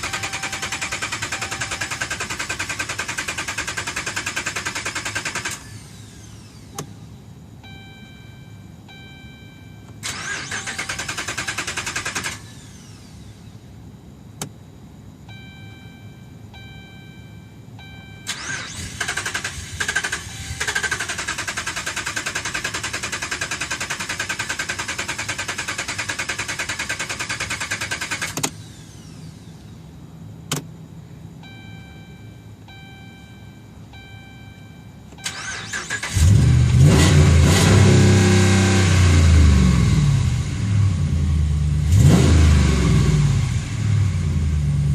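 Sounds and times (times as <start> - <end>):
dashboard warning chime: 0.0 - 2.1, 7.6 - 11.0, 15.2 - 18.5, 31.4 - 35.8
engine cranking without starting: 0.0 - 6.6, 10.0 - 13.0, 18.3 - 29.1, 35.2 - 37.2.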